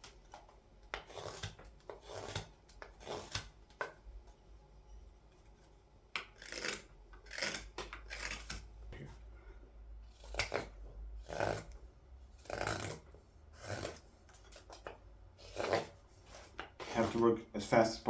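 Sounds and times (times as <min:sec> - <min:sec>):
carving blade shaving wood: 0:00.1 - 0:03.6, 0:06.2 - 0:08.8, 0:10.0 - 0:17.8.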